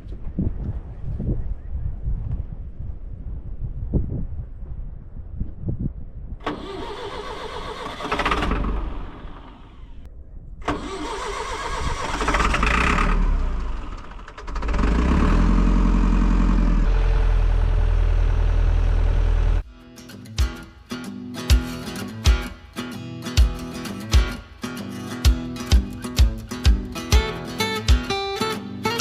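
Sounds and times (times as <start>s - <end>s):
tractor engine running: 6.4s - 10.0s, 10.6s - 19.7s
diesel engine cranking: 6.4s - 19.6s.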